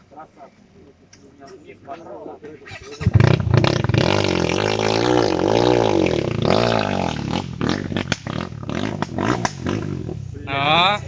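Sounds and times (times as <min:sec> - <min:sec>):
motorcycle engine revving: 0:02.7 - 0:11.0
engine pops and cracks: 0:07.3 - 0:09.9.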